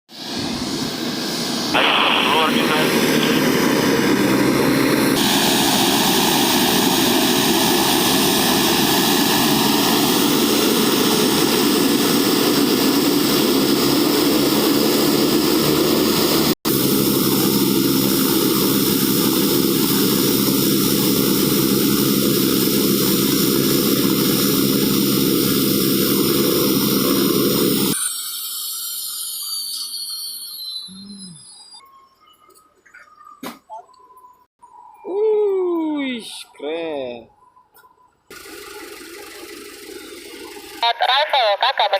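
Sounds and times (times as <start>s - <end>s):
airliner engines running: 0.1s - 28.0s, 38.3s - 41.9s
engines winding down whine: 0.2s - 32.6s, 38.3s - 41.9s.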